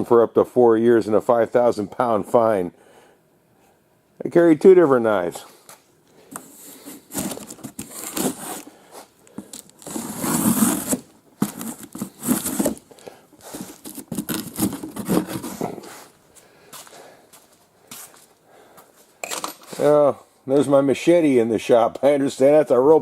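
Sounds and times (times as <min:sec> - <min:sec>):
knife cutting packaging: 0:07.1 - 0:08.7, 0:09.8 - 0:12.8, 0:13.4 - 0:15.9.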